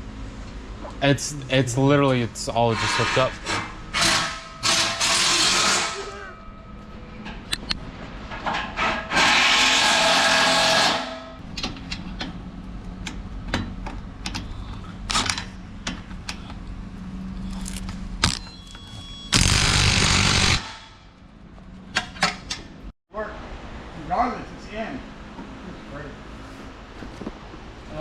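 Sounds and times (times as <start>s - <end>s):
hand-held power tool: 19.3s - 20.9s.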